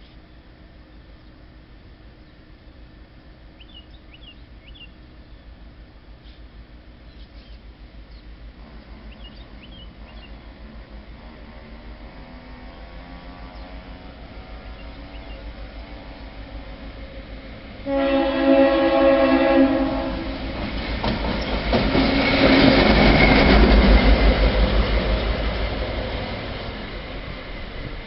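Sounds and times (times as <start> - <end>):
locomotive engine passing: 7.9 - 28.0
locomotive air horn: 17.8 - 20.4
wheels clacking over rail joints: 20.3 - 28.0.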